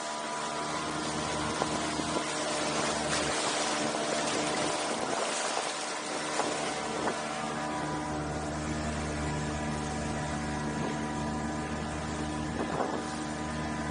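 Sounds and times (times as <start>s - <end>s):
boat engine running: 0.0s - 13.9s
rushing hiss of water and wind: 0.0s - 13.9s.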